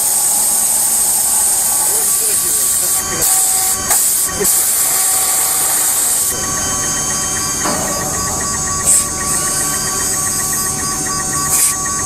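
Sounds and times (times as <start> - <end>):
cnc router hum and whine: 0.0 - 12.0.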